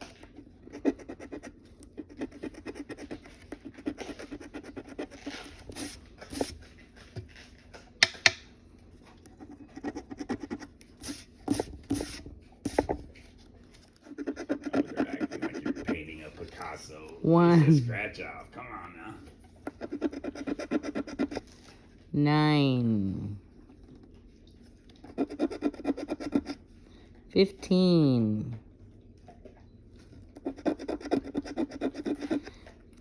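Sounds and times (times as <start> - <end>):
scratch card being scraped: 0.7 - 6.5, 14.1 - 16.1, 19.7 - 21.6, 25.1 - 26.6, 30.4 - 32.5.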